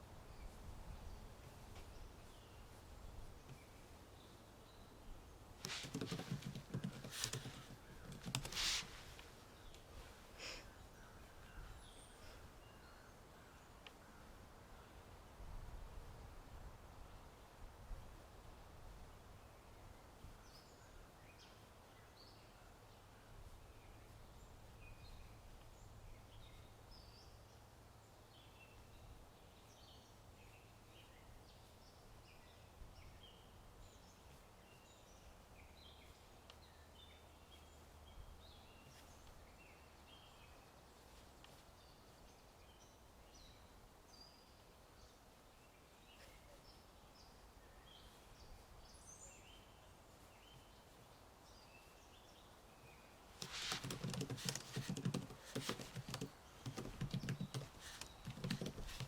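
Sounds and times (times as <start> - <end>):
wind: 0.0 - 59.0
small birds chirping: 1.8 - 14.0, 29.5 - 59.0
rustling: 5.6 - 10.3, 53.4 - 59.0.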